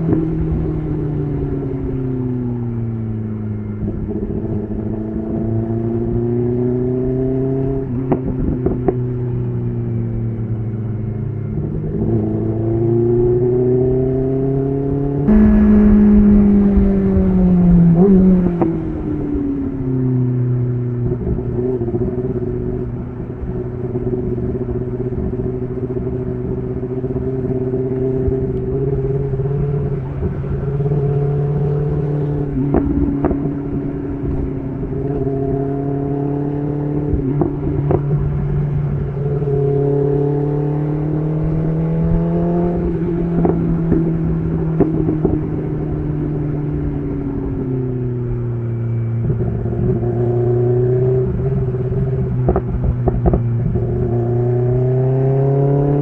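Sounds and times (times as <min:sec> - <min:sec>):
motorcycle engine running: 0:15.1 - 0:19.8.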